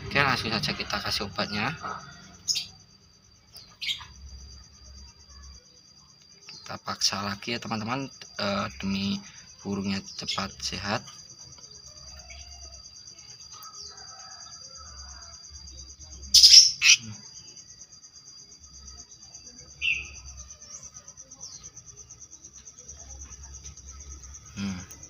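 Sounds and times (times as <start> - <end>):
high insect trill: 0.0 - 25.0
harsh bird call: 16.4 - 17.2.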